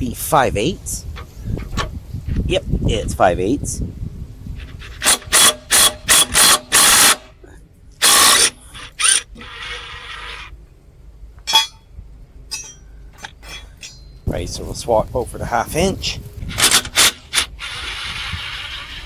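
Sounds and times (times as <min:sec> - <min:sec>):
tool handling: 0:11.4 - 0:11.8, 0:12.5 - 0:14.1, 0:16.4 - 0:17.8.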